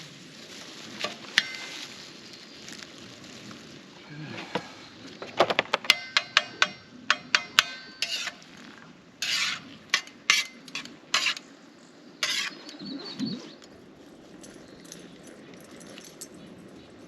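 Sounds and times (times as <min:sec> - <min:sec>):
metal utensil tapping pan: 0:05.9 - 0:08.4
utensil scraping pan: 0:06.2 - 0:08.4, 0:09.2 - 0:11.4, 0:12.2 - 0:12.7.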